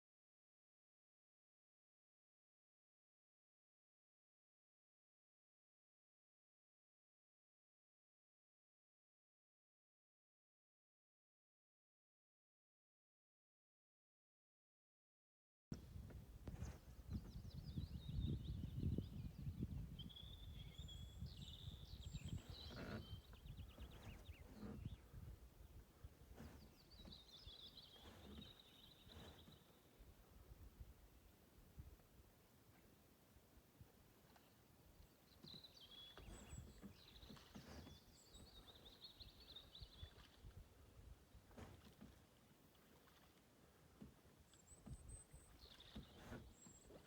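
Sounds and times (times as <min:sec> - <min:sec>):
songbirds chirping: 0:15.8 - 0:47.0.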